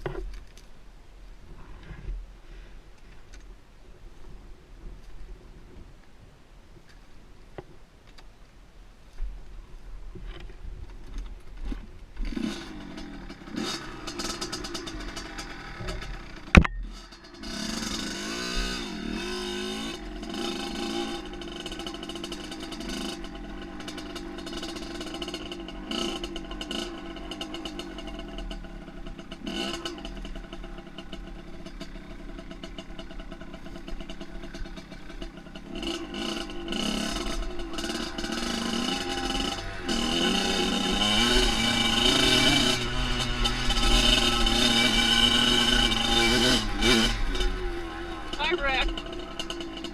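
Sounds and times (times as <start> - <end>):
dirt bike engine revving: 12.2 - 49.9.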